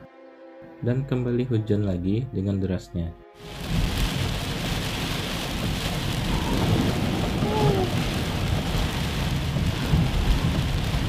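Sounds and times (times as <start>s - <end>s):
heavy rain on a car: 3.4s - 11.0s
road and engine rumble: 3.6s - 11.0s.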